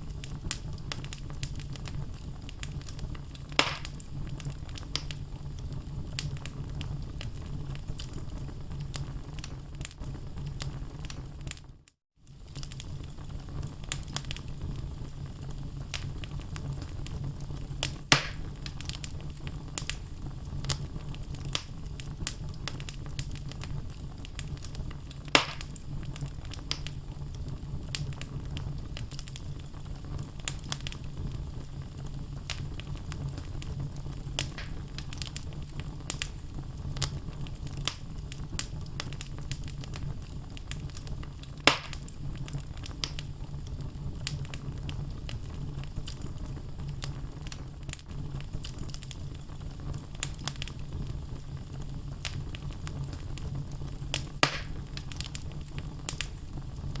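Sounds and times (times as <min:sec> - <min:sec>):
logs crackling in fireplace: 0:00.0 - 0:57.0
loud sharp pops: 0:03.6 - 0:04.0, 0:18.1 - 0:18.6, 0:25.3 - 0:25.8, 0:34.4 - 0:34.9, 0:41.6 - 0:42.1, 0:54.4 - 0:54.8.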